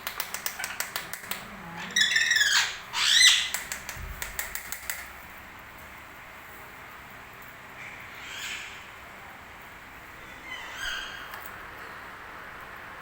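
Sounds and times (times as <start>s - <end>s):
sharp clicks: 0.0s - 1.5s, 3.5s - 5.1s
parrot rising and falling call: 1.6s - 3.5s
parrot squawking: 1.6s - 3.6s, 10.2s - 11.3s.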